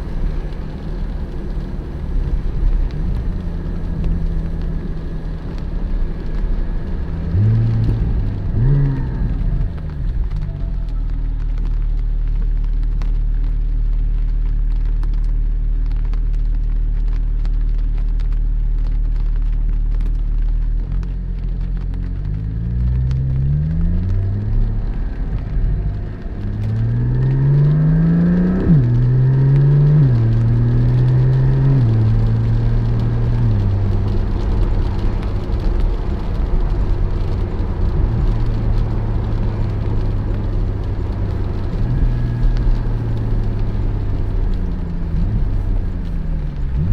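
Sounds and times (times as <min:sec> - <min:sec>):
car engine revving through gears: 0:00.0 - 0:10.4, 0:20.8 - 0:46.9.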